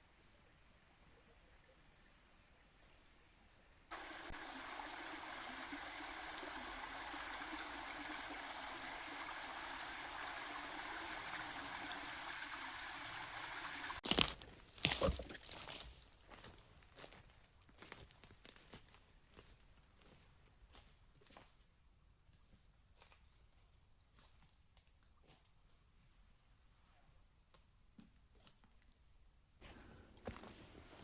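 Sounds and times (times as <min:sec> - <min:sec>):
stream flowing: 0:03.9 - 0:14.0.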